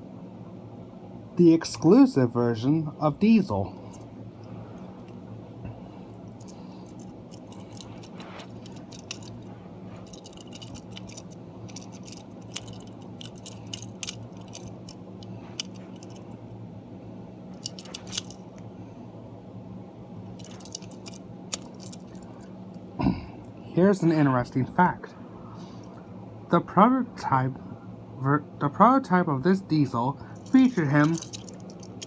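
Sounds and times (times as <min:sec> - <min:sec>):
steady low hum: 0:00.0 - 0:32.0
toy clicks and clinks: 0:06.3 - 0:09.4, 0:10.0 - 0:16.4, 0:17.6 - 0:18.4, 0:20.4 - 0:22.3, 0:30.4 - 0:32.0.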